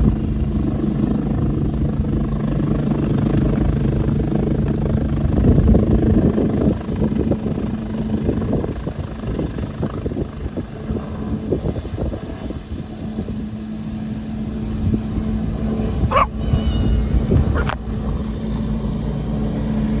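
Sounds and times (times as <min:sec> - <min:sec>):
helicopter engine and rotor chop: 0:00.0 - 0:20.0
dog barking: 0:16.1 - 0:16.4, 0:17.5 - 0:17.8.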